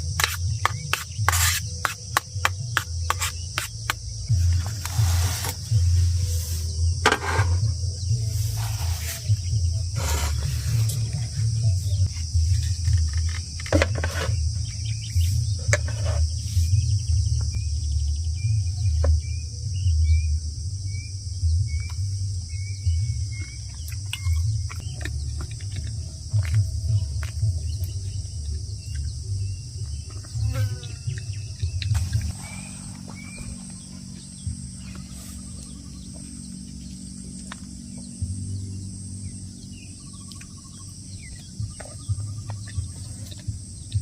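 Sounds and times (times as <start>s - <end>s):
insect drone: 0.0s - 44.0s
bird chirping: 14.1s - 44.0s.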